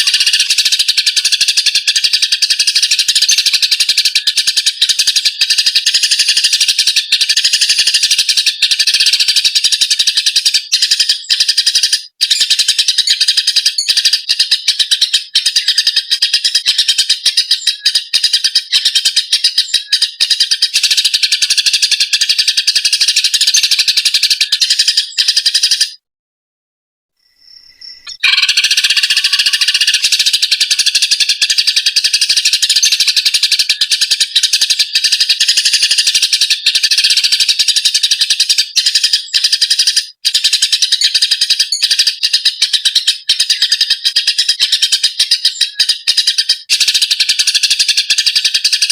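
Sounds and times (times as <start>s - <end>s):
sparrows chirping: 0.0s - 26.0s, 27.2s - 48.9s.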